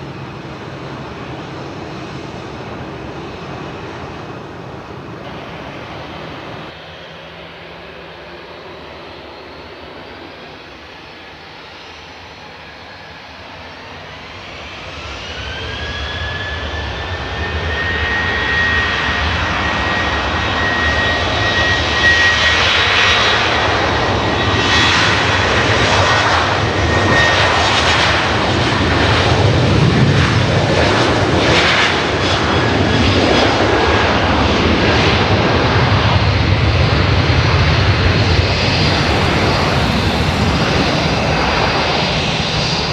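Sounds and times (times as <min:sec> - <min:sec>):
jet engine roar: 0:00.0 - 0:42.9
jet engine whine: 0:00.0 - 0:42.9.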